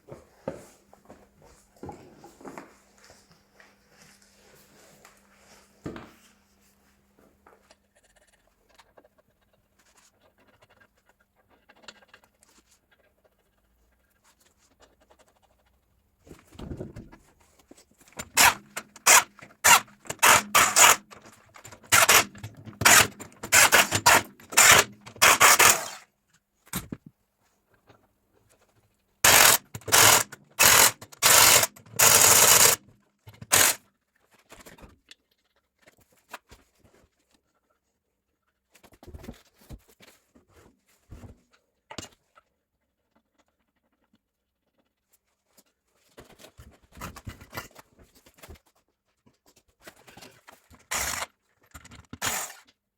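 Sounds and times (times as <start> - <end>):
impact wrench rattling bursts: 18.2 - 26.0, 29.3 - 32.8, 33.4 - 33.8, 50.9 - 51.3, 52.2 - 52.6.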